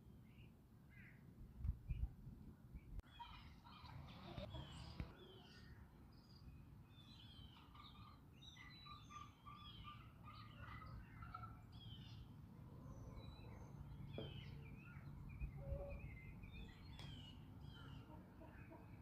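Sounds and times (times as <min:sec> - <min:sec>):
birds chirping and singing: 0:02.8 - 0:19.0.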